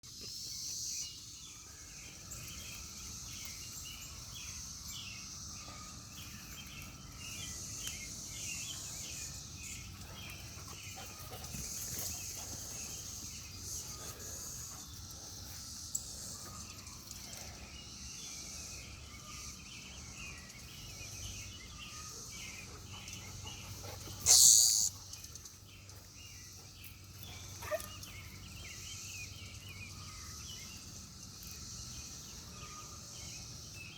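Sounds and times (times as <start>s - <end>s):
cicada chorus buzzing: 24.2s - 25.2s.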